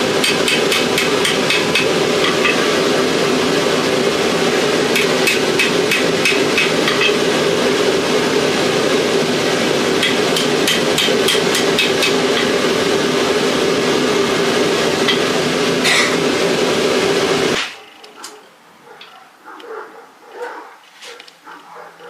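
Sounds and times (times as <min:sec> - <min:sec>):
loud rushing noise: 0:00.0 - 0:17.8
hammer striking hot steel: 0:00.2 - 0:02.8, 0:04.8 - 0:07.4, 0:09.9 - 0:13.0, 0:15.0 - 0:16.2.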